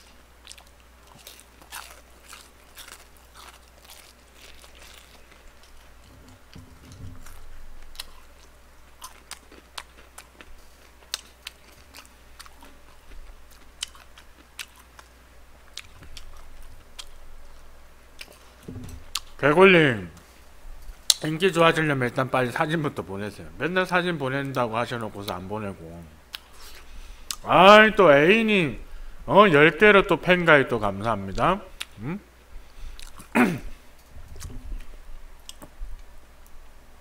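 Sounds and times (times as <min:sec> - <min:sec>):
crisp chewing crunches: 0:00.4 - 0:19.4, 0:32.9 - 0:33.3.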